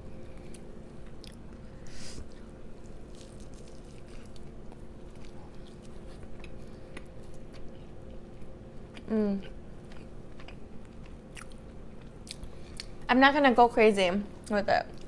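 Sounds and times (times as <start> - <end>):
electrical hum: 0.0 - 15.0
person chewing: 0.2 - 13.0.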